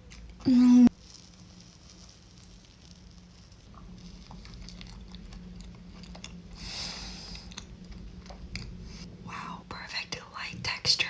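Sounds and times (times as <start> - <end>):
faint steady hum: 0.0 - 11.0
person chewing food: 1.0 - 8.9.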